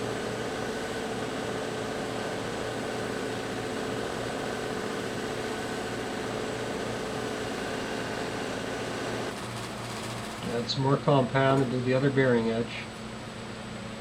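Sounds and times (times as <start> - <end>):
electric buffing wheel whirring: 0.0 - 10.5.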